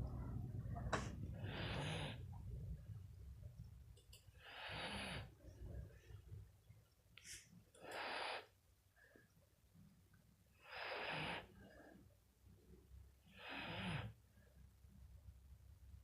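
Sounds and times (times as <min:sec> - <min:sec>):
dog snoring: 0:01.3 - 0:02.2, 0:04.4 - 0:05.3, 0:13.4 - 0:14.2.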